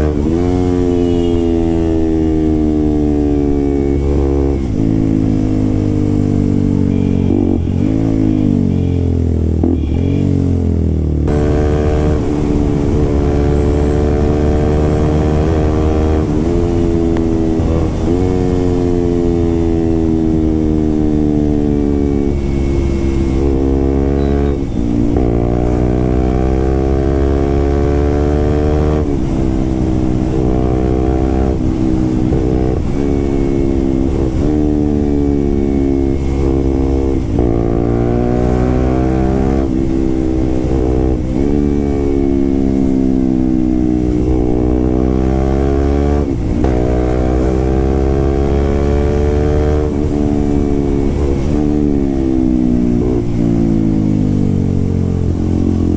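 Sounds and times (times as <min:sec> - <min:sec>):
loud motorcycle engine revving: 0:00.0 - 0:55.9.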